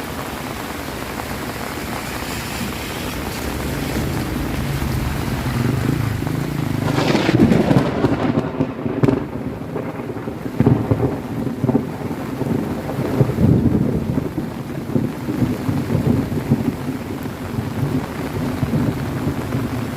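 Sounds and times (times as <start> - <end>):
heavy rain: 0.0 - 19.9
thunder clap and rumble: 0.4 - 19.9.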